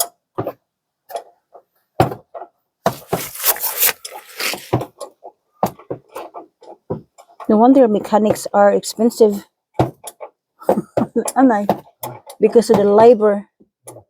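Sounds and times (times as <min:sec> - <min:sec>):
rough rasping: 0:02.9 - 0:04.8.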